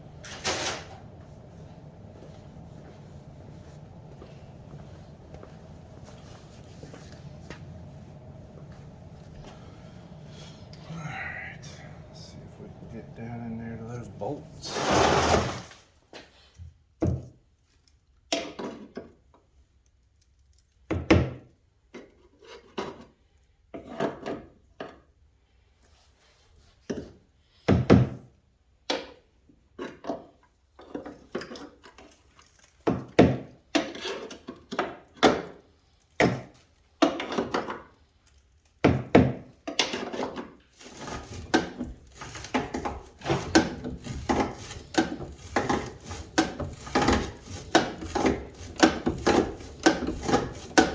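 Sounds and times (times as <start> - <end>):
rubbing and scraping: 1.4 - 15.8, 40.0 - 50.9.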